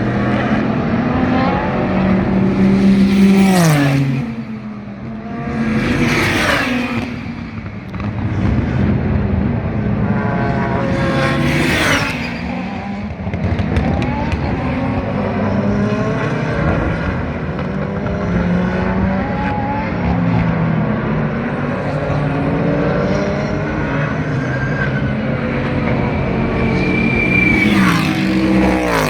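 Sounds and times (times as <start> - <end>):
race car engines: 0.0 - 29.0
race car passing loudly: 0.0 - 29.0.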